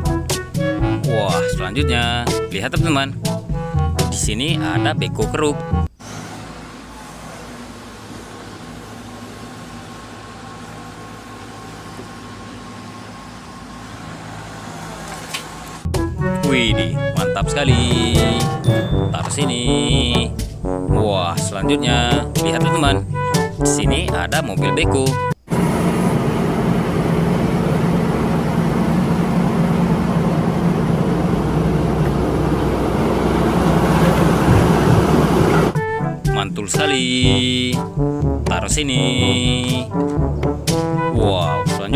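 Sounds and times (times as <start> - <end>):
machine hum with droning tones: 5.8 - 16.4, 25.4 - 35.8
vehicle engine running: 5.9 - 23.4, 25.4 - 35.8, 36.7 - 41.9.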